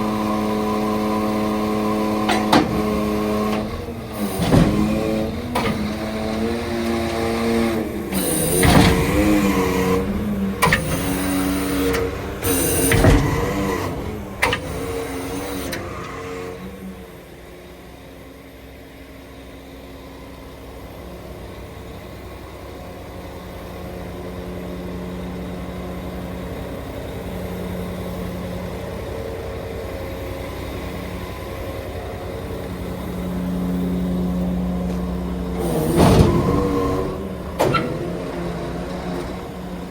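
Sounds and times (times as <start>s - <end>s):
truck diesel engine running: 21.0s - 39.9s.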